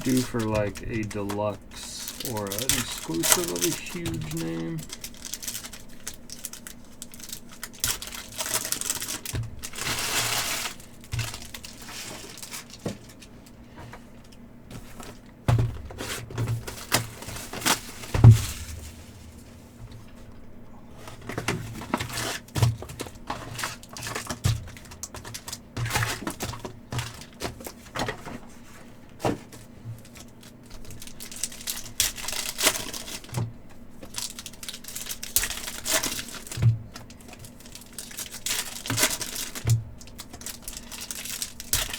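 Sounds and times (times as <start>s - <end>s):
wrappers crinkling and tearing: 0.0s - 13.5s, 16.0s - 20.0s, 21.0s - 41.9s.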